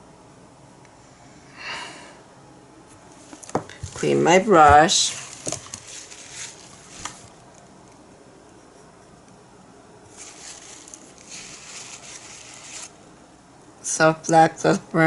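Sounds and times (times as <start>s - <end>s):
paintbrush swishing: 10.1s - 13.0s
brush tapping container: 10.2s - 12.9s.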